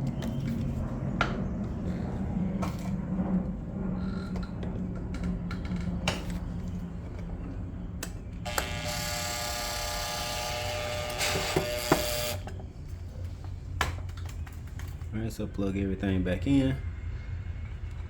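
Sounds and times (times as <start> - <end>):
small electric motor whirring: 8.4 - 12.5.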